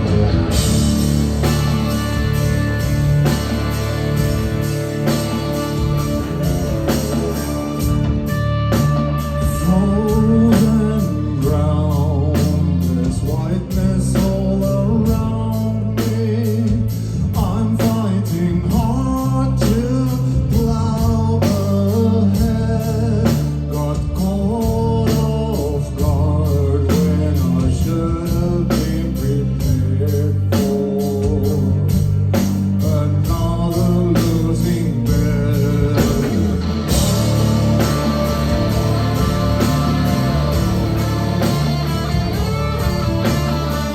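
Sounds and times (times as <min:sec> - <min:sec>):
rock band playing: 0:00.0 - 0:43.9
person singing: 0:08.7 - 0:32.1, 0:32.8 - 0:43.9.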